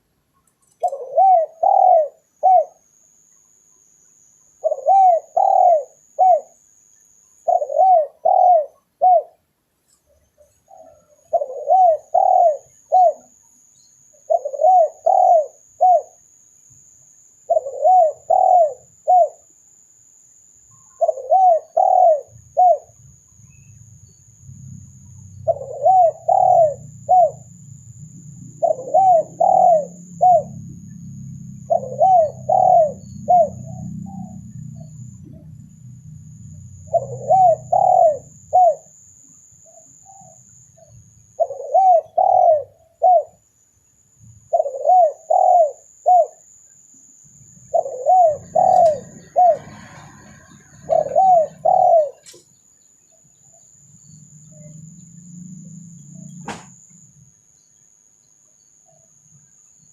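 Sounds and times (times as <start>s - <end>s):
dove cooing: 0.8s - 3.0s, 4.6s - 6.6s, 7.4s - 9.4s, 10.4s - 13.4s, 14.2s - 16.3s, 17.4s - 19.5s, 20.7s - 23.2s, 24.6s - 39.0s, 39.6s - 43.4s, 44.4s - 46.5s, 47.6s - 52.4s, 54.0s - 56.6s.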